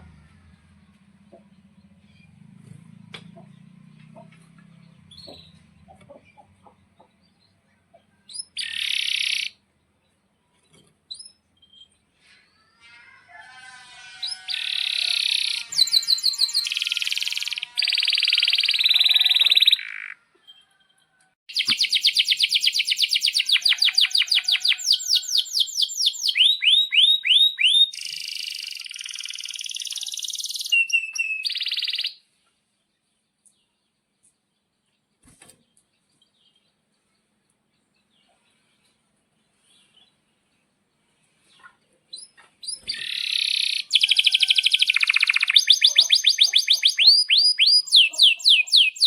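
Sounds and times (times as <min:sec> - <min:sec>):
canary singing trills: 0:03.4 - 0:09.7, 0:14.2 - 0:20.2, 0:21.5 - 0:32.2, 0:42.1 - 0:49.0.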